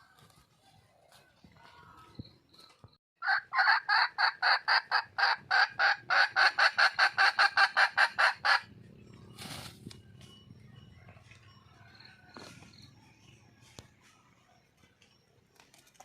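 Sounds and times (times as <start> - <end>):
hen cackling: 3.2 - 8.8
short rustle: 9.4 - 9.9.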